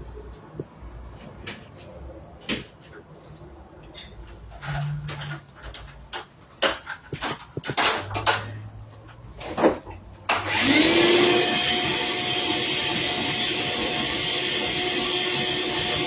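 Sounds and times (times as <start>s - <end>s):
electric blower motor whine: 10.3s - 16.0s.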